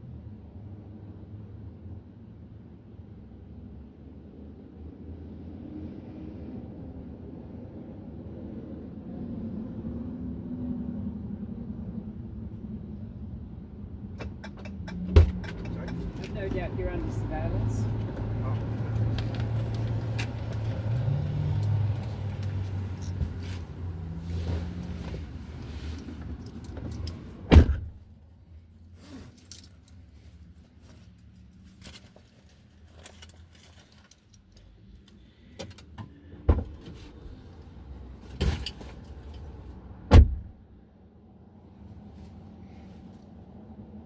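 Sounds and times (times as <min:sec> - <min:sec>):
car engine rumble: 0:09.7 - 0:44.0.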